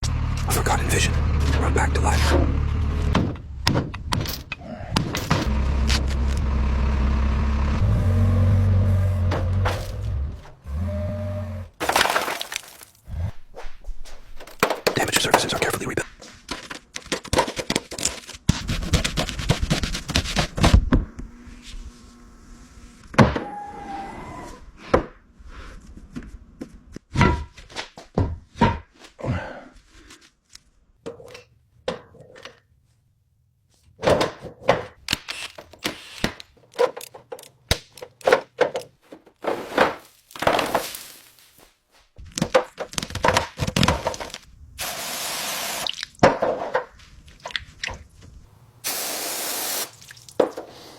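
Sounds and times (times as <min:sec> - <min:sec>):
workshop knocks and thunks: 0:27.1 - 0:29.0
spray hiss: 0:44.8 - 0:45.9, 0:48.8 - 0:50.0.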